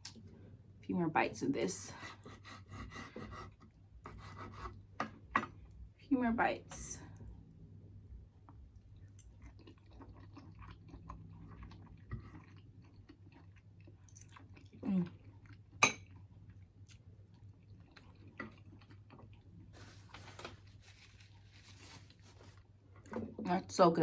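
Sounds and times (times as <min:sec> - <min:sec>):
person chewing food: 0:08.5 - 0:19.7.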